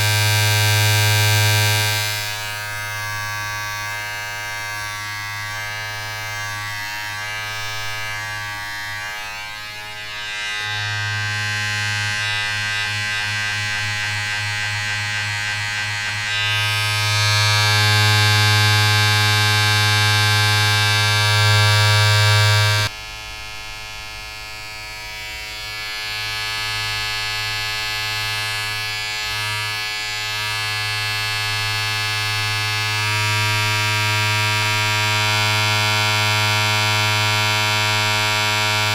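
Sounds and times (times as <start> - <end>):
small electric motor buzzing: 0.0 - 22.9, 25.1 - 38.9.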